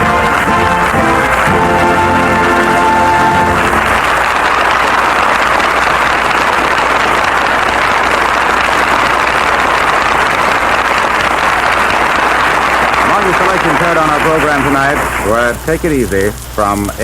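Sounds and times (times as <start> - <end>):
audience applauding: 0.0 - 17.0
low steady hum: 13.0 - 17.0.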